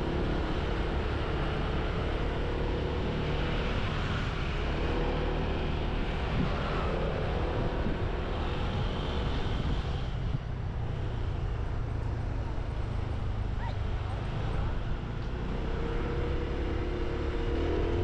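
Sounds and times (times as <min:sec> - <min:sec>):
wind rushing over microphone: 0:00.0 - 0:11.8.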